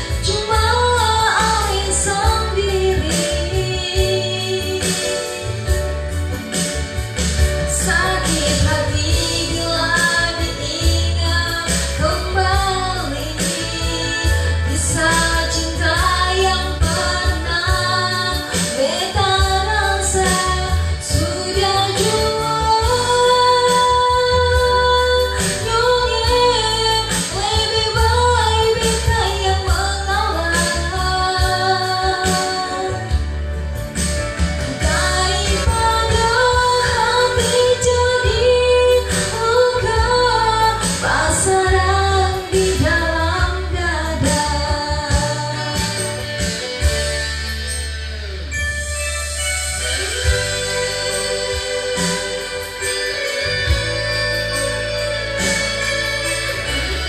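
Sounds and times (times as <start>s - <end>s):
backing track with pulsing bass: 0.0s - 57.0s
woman singing a slow ballad: 0.0s - 57.0s.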